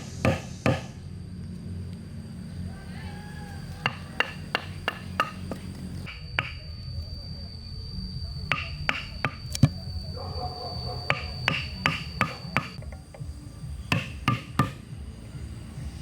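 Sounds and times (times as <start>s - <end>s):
hand tool knocking on wood: 13.9s - 14.8s.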